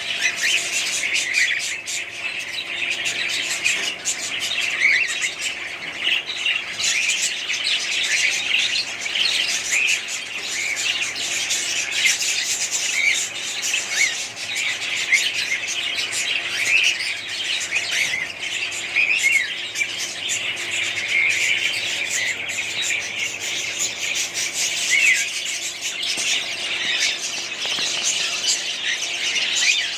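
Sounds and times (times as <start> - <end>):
budgerigars chirping: 0.0 - 29.9.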